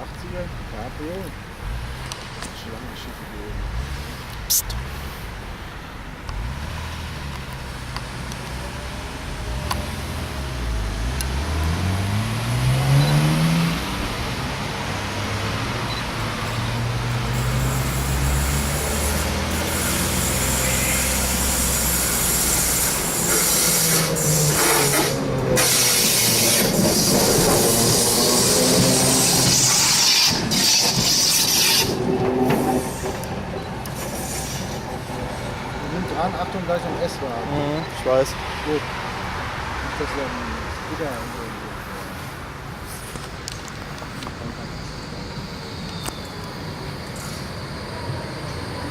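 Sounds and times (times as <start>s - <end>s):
tram motors whining: 15.6s - 37.4s
wheels rolling on rails: 16.2s - 35.7s.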